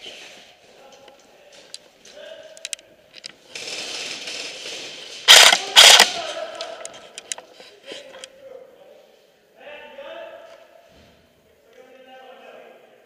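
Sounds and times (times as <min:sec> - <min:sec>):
airsoft rifle firing bursts: 0:03.5 - 0:06.4
sharp clicks: 0:05.3 - 0:07.4.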